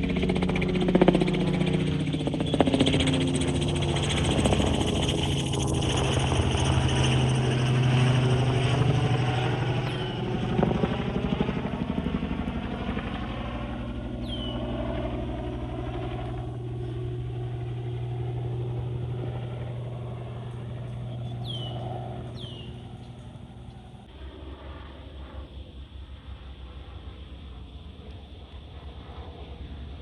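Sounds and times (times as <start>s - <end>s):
aircraft engine drone: 0.0s - 30.0s.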